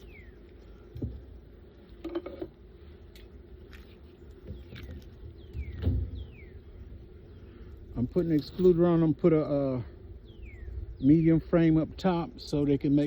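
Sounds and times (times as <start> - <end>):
honeybees humming: 0.0 - 13.0.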